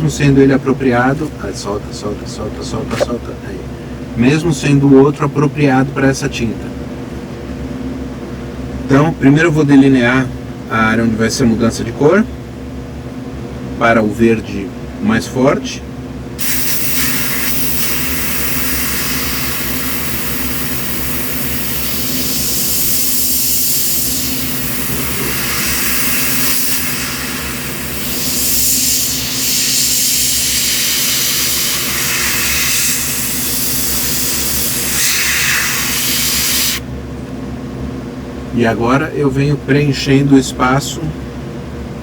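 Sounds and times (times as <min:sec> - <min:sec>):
steady low hum: 0:00.0 - 0:42.0
airbrush spraying hiss: 0:16.4 - 0:36.8.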